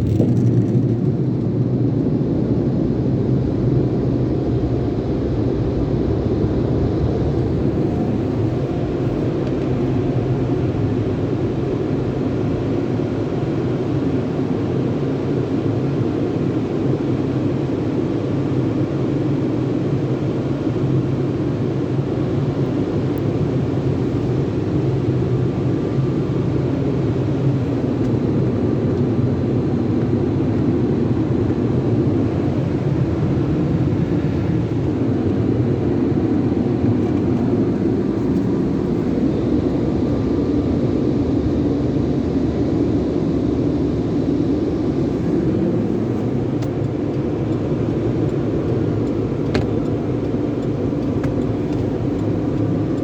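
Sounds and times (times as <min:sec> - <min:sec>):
car wash equipment rumbling: 0:05.9 - 0:13.8.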